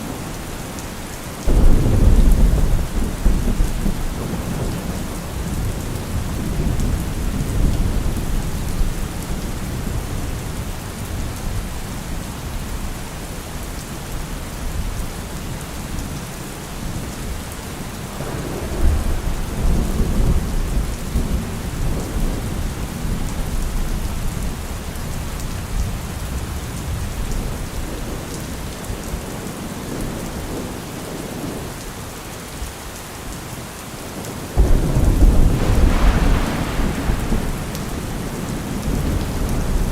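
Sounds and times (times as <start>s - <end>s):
heavy rain: 0.0s - 39.9s
thunder rumbling: 1.5s - 11.2s, 18.2s - 28.7s, 34.6s - 39.9s.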